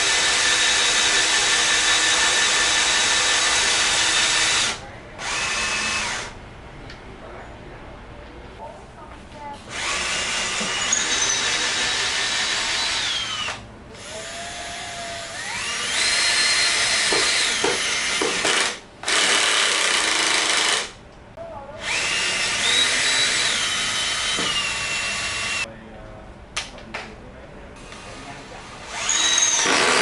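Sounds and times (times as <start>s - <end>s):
cordless drill motor whine: 9.7s - 20.9s, 21.8s - 25.6s, 28.8s - 30.0s.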